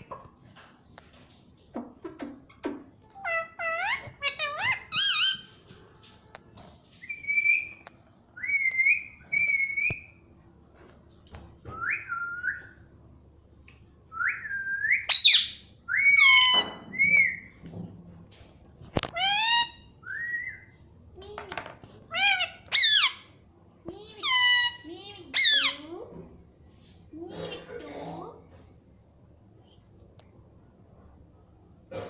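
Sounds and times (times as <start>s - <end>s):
shrill parrot squawks: 3.2s - 5.5s, 15.1s - 17.4s, 19.2s - 19.9s, 22.1s - 23.3s.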